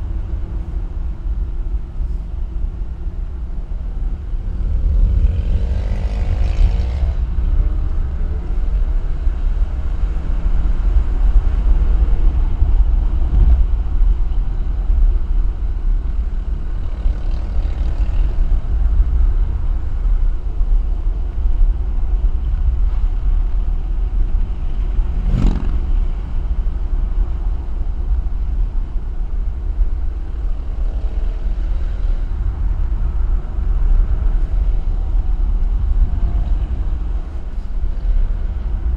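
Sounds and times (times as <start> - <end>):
wind and road noise: 0.0 - 38.9.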